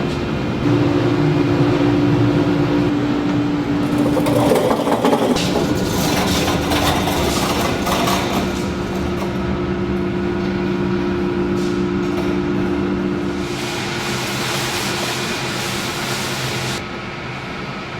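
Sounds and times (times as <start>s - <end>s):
factory machinery humming: 0.0s - 17.9s
machinery clatter: 0.1s - 10.5s.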